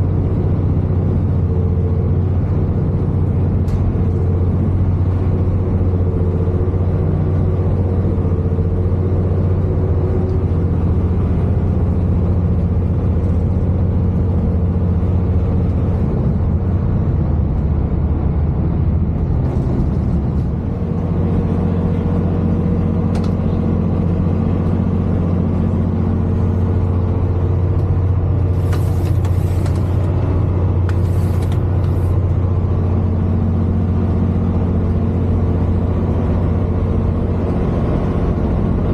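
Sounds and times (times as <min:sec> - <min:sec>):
train engine drone and rumble: 0:00.0 - 0:38.9.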